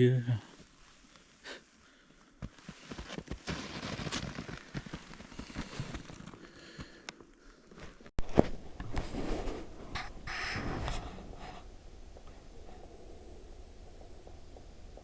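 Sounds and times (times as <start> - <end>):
footsteps through brush: 2.4 - 7.0.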